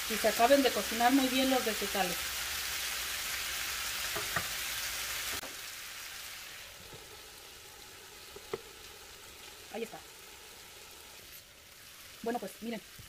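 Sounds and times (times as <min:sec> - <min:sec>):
food sizzling in a skillet: 0:00.0 - 0:13.0.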